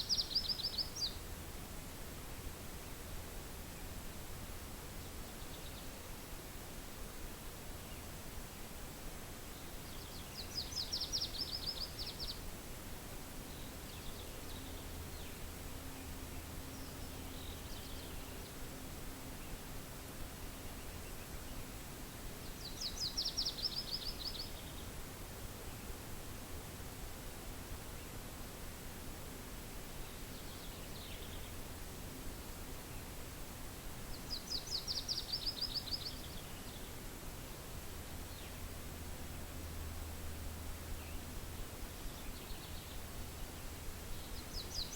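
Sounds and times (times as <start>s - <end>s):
small songbird singing: 0.0s - 1.4s, 4.9s - 6.1s, 9.5s - 12.5s, 13.4s - 26.1s, 29.9s - 33.3s, 34.0s - 37.0s, 38.2s - 39.8s, 40.8s - 44.9s
soft wind hiss: 0.0s - 44.9s.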